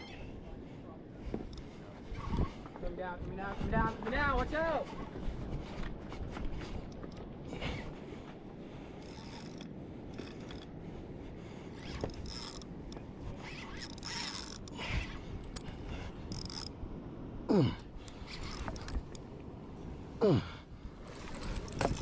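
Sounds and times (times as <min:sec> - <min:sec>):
fishing reel ratcheting: 0:09.0 - 0:10.7, 0:11.8 - 0:12.7, 0:13.4 - 0:15.6, 0:16.3 - 0:16.8, 0:18.2 - 0:19.2.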